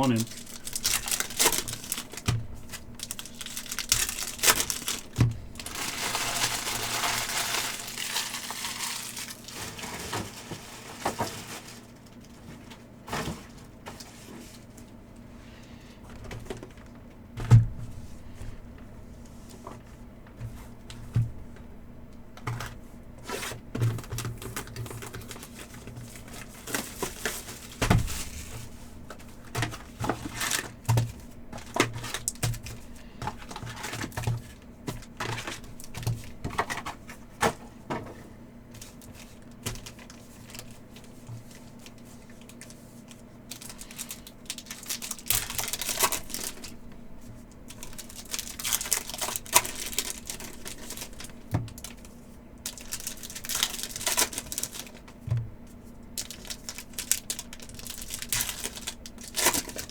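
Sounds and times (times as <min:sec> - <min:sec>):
card packs tearing: 0:00.0 - 0:12.2, 0:29.4 - 0:37.6, 0:43.5 - 0:46.8, 0:47.7 - 0:55.1, 0:56.2 - 0:59.9
wrapper crinkling: 0:00.0 - 0:12.8, 0:23.3 - 0:37.2, 0:38.7 - 0:55.2, 0:56.2 - 0:59.9
steady low hum: 0:00.0 - 0:59.9.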